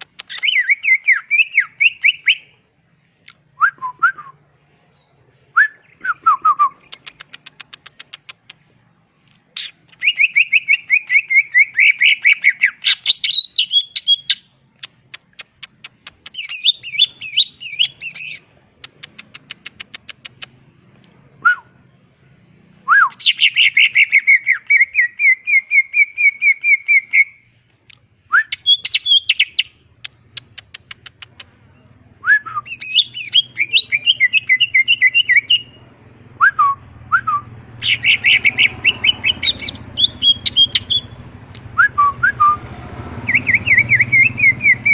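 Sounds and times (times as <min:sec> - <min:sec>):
bird chattering trills: 0:00.0 - 0:02.4, 0:06.8 - 0:08.6, 0:09.6 - 0:20.6, 0:28.5 - 0:31.8, 0:32.6 - 0:35.8, 0:37.8 - 0:41.2
bird downward whistles: 0:32.2 - 0:35.8, 0:36.4 - 0:41.2, 0:43.2 - 0:44.9.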